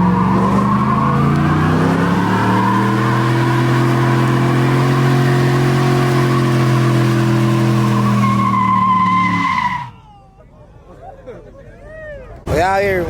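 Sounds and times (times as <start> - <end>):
car engine at high revs: 0.0 - 9.7
spinning tyres hissing: 0.0 - 9.9.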